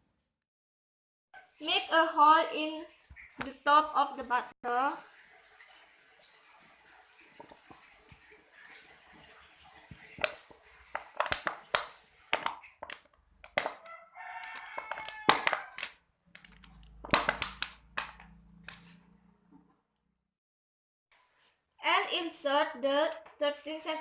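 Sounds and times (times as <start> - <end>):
plastic bottle crackling: 9.9 - 18.3
rooster crowing: 13.7 - 16.0.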